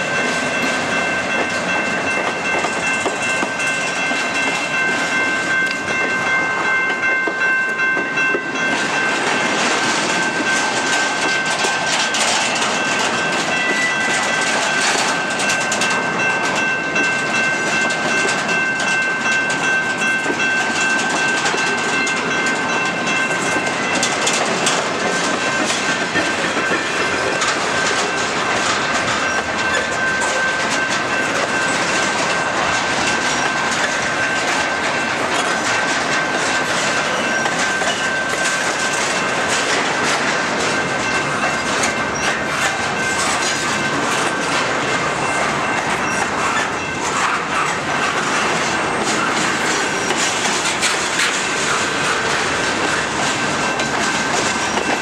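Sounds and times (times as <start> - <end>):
train wheels rushing on rail: 0.0 - 55.0
wheels clicking over rail joints: 0.0 - 55.0.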